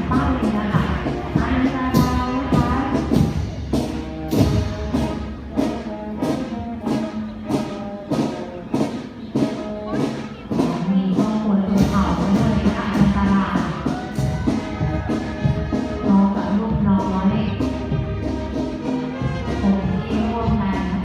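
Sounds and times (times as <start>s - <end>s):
drum strokes: 0.0s - 21.0s
marching band playing: 0.0s - 21.0s.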